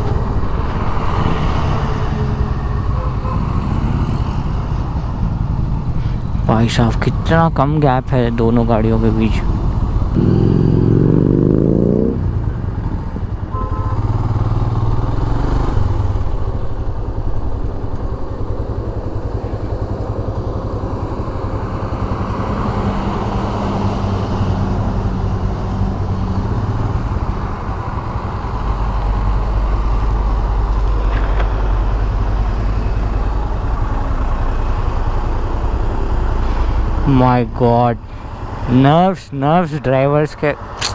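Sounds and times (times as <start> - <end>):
wind and road rush: 0.0 - 40.9
motorcycle engine running: 8.6 - 38.9.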